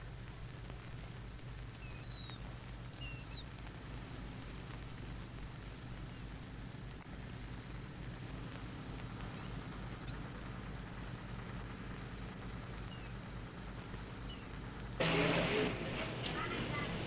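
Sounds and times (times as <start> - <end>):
steady low hum: 0.0 - 17.0
birds chirping: 1.6 - 6.7, 8.8 - 17.0.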